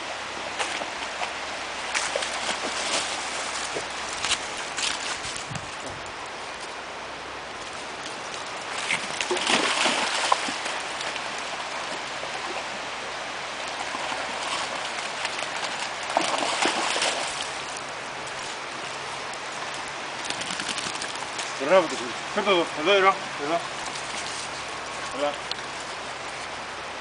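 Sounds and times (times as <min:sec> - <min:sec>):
river water running: 0:00.0 - 0:27.0
dog splashing through water: 0:08.7 - 0:12.6, 0:13.7 - 0:17.7.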